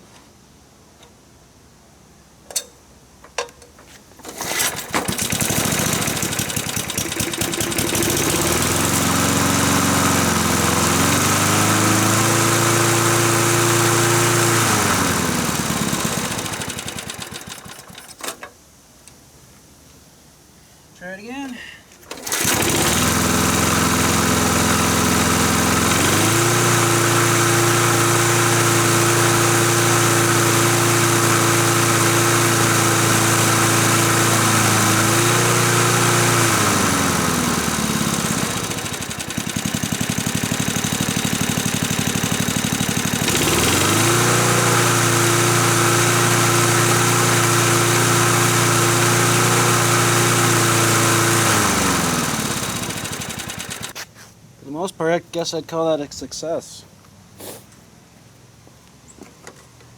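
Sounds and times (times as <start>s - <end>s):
lawn mower engine running: 3.3s - 18.5s, 22.0s - 54.0s.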